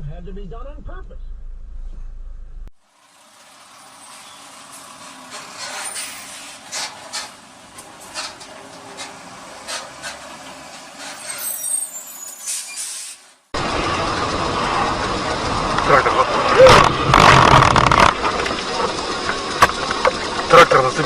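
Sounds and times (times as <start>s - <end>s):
road traffic hiss: 2.8s - 21.0s
brief high squeal: 5.6s - 6.6s, 11.0s - 13.4s.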